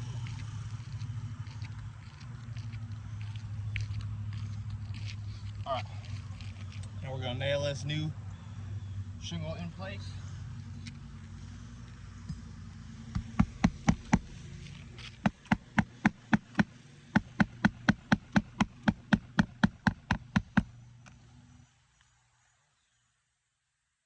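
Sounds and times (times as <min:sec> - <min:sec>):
low hum: 0:00.0 - 0:07.0, 0:10.0 - 0:22.3
hammer striking nails: 0:13.1 - 0:14.3, 0:15.0 - 0:20.7.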